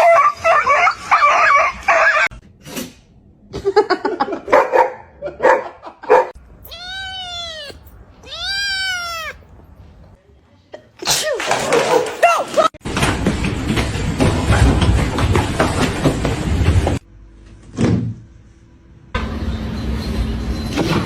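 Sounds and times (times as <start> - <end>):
cat meowing: 6.5 - 10.2.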